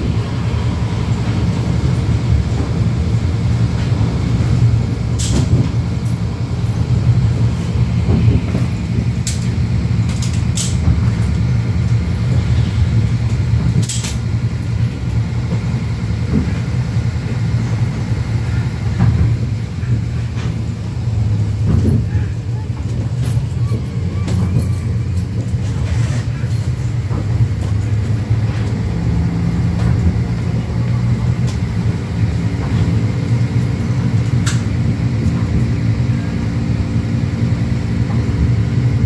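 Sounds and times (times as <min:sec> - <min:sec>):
train low rumble: 0:00.0 - 0:39.0.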